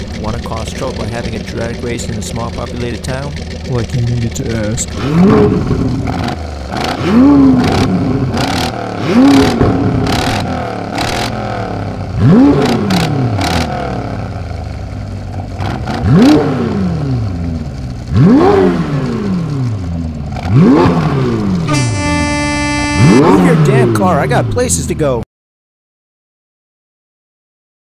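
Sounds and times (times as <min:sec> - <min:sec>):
exhaust pops and crackles: 0:00.0 - 0:11.4
car engine revving: 0:00.0 - 0:25.1.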